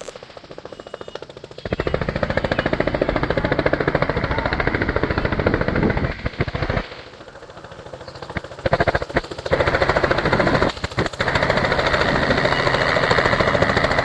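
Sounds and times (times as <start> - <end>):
large engine revving: 8.3 - 14.0.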